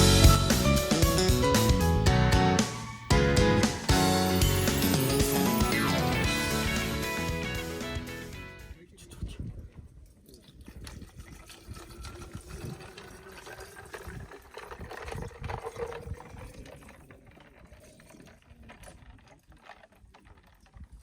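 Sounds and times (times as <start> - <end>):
water running into a container: 10.2 - 21.0.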